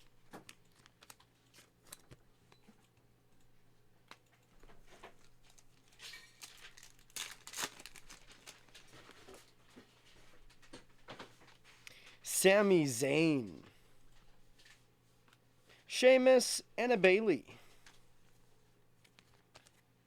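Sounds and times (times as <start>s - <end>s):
packaging crinkling: 5.5s - 9.6s.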